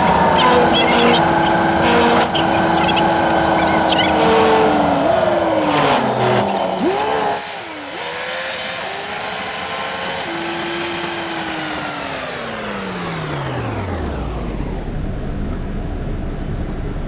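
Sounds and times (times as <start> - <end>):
truck diesel engine: 0.0 - 8.3.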